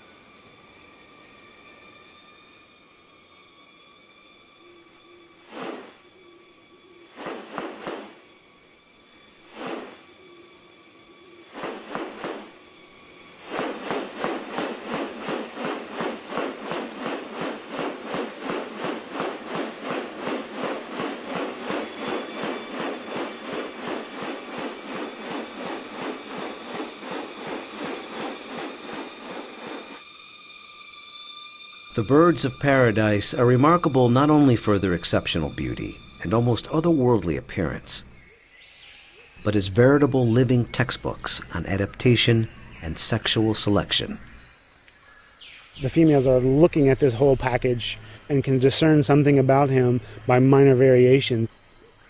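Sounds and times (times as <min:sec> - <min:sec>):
high insect drone: 0:00.0 - 0:52.0
pulsed sounds: 0:13.4 - 0:30.0.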